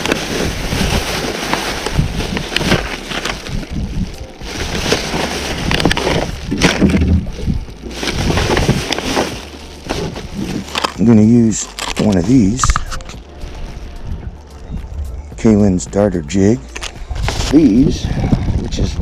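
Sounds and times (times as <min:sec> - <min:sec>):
wind buffeting microphone: 0:01.8 - 0:02.6, 0:03.3 - 0:04.4, 0:17.0 - 0:19.0
handling knocks and rustles: 0:04.5 - 0:13.2.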